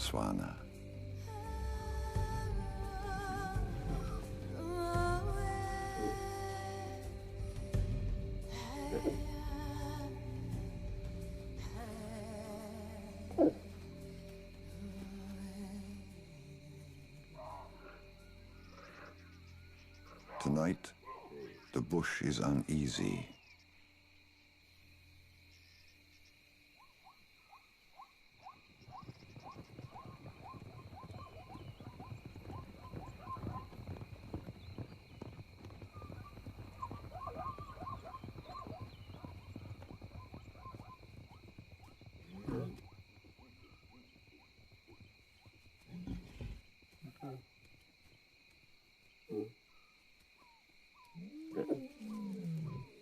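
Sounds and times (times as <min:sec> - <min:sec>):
high insect drone: 0:00.0 - 0:53.0
distant lions calling: 0:05.7 - 0:06.5, 0:13.2 - 0:13.8, 0:17.4 - 0:23.4, 0:28.4 - 0:33.7, 0:35.9 - 0:44.1
animal rising chirp: 0:27.0 - 0:45.1, 0:50.4 - 0:53.0.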